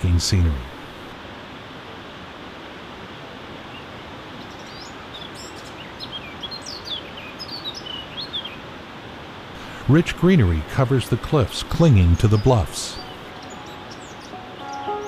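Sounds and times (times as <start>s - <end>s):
waterfall rushing: 0.0s - 3.6s, 8.7s - 15.0s
small bird chirping: 12.4s - 15.0s.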